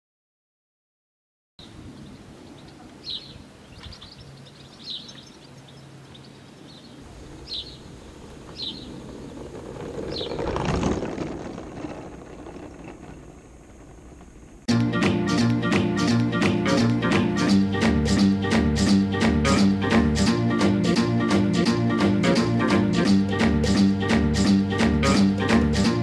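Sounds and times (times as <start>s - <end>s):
birds chirping: 1.6s - 10.8s
outdoor background noise: 1.6s - 26.0s
rushing noise: 7.0s - 16.2s.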